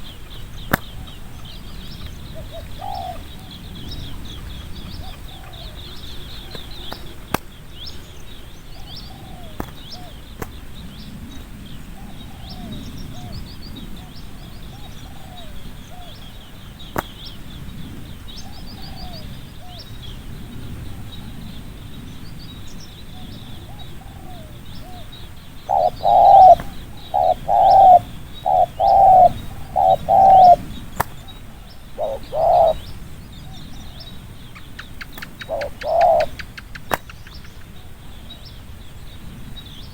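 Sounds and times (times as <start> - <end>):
dove cooing: 0.0 - 7.2, 8.7 - 10.3, 12.0 - 17.1, 23.1 - 32.9, 34.9 - 37.0
small birds chirping: 0.0 - 39.9.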